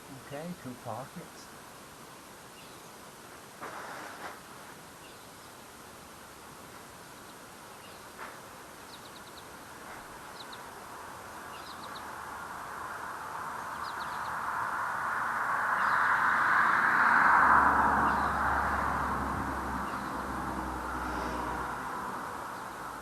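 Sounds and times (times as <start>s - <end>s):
small birds chirping: 0.0s - 3.1s, 4.9s - 5.7s, 6.5s - 14.7s, 15.6s - 16.4s, 18.0s - 18.8s, 19.8s - 20.4s, 22.4s - 23.0s
rushing noise: 12.0s - 23.0s.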